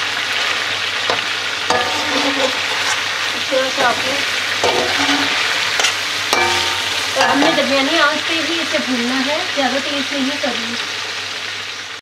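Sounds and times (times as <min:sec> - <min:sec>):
food sizzling in oil: 0:00.0 - 0:12.0
metal spatula scraping pan: 0:01.1 - 0:08.0.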